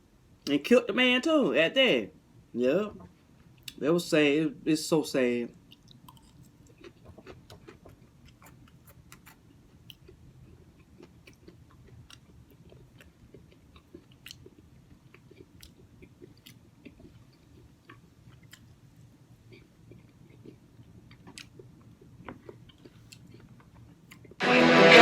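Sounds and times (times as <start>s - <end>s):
chewing soft food: 5.6s - 24.4s.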